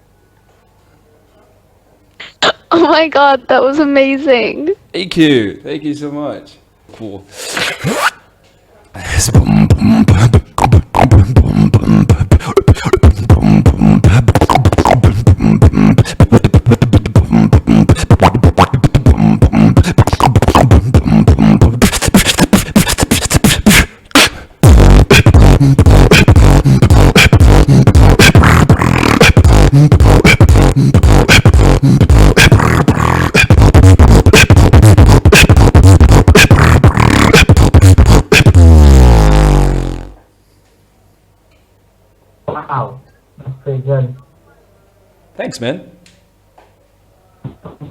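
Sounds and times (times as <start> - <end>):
beatboxing: 2.2 - 2.8, 7.4 - 8.3, 9.0 - 40.3, 42.5 - 43.6, 47.4 - 47.9
heavy bass line: 9.0 - 40.2.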